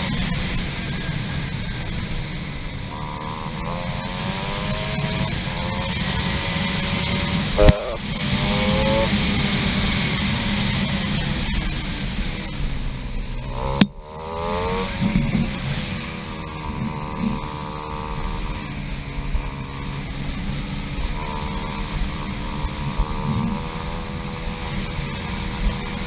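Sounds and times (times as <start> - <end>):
dirt bike engine revving: 0.0 - 26.0
wind hiss: 0.0 - 26.0
sharp click: 7.6 - 8.0.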